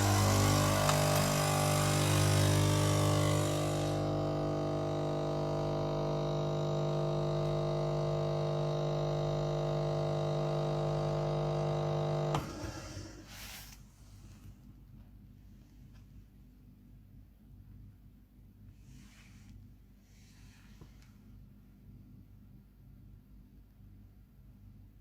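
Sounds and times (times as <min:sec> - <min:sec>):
coffee machine pump humming: 0:00.0 - 0:13.8.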